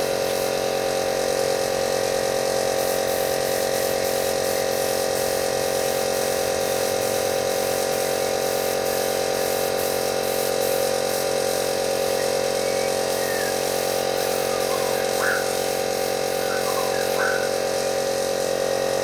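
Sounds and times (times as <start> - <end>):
hissing air spray: 2.8 - 19.0.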